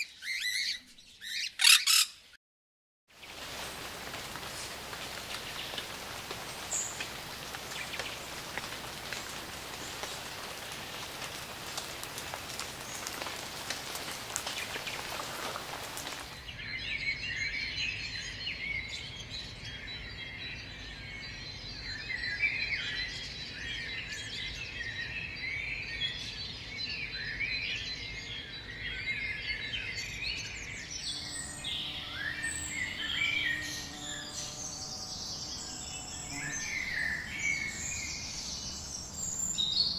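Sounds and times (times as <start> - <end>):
rain hissing: 3.1 - 16.4
raindrops ticking: 3.2 - 16.4.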